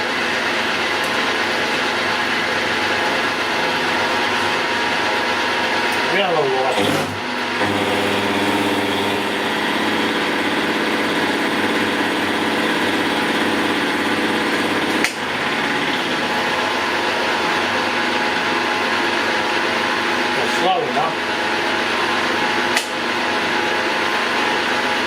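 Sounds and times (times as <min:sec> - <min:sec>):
milling machine whirring: 0:02.3 - 0:18.7.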